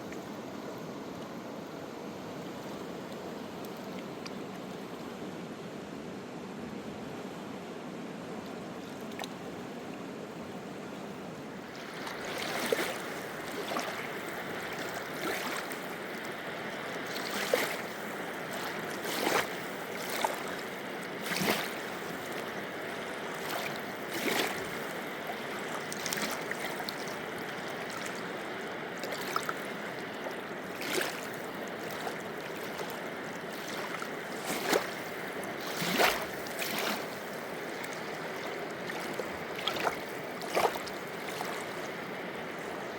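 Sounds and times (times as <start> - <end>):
river water running: 8.2 - 42.9
short water splashes: 11.5 - 42.9.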